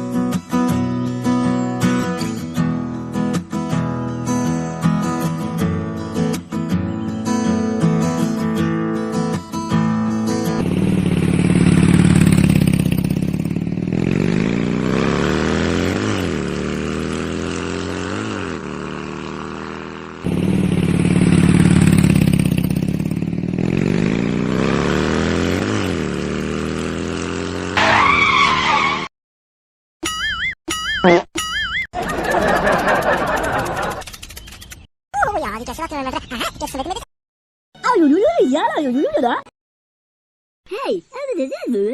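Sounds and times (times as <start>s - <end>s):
tractor engine running: 10.0s - 28.1s, 32.0s - 34.9s.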